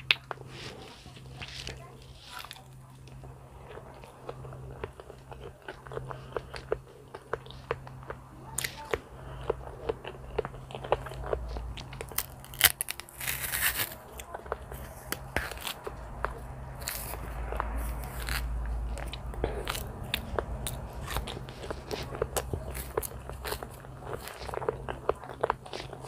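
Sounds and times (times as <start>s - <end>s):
chewing soft banana: 0.0s - 26.0s
low steady hum: 0.0s - 26.0s
banana peel tearing: 11.4s - 24.5s.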